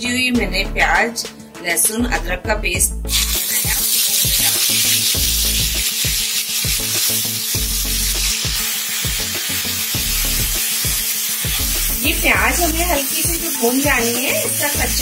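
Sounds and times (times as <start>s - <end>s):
paste sizzling in hot oil: 3.1s - 15.0s.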